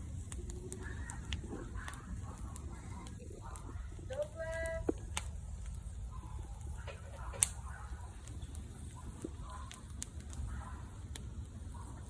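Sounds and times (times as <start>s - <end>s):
bonfire crackling and popping: 0.0s - 12.0s.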